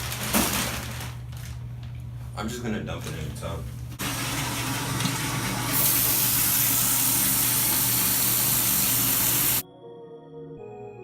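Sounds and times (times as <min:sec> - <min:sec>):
bathtub tap water gushing: 0:03.9 - 0:09.6
soft ambient synth music: 0:09.6 - 0:11.0.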